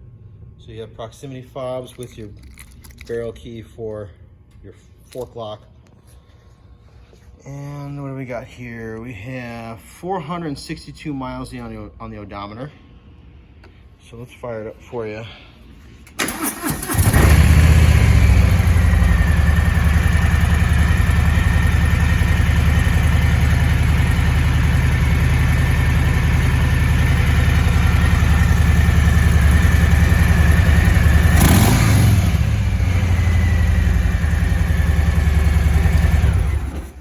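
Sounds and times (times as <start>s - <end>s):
motorcycle engine idling: 16.3s - 37.0s.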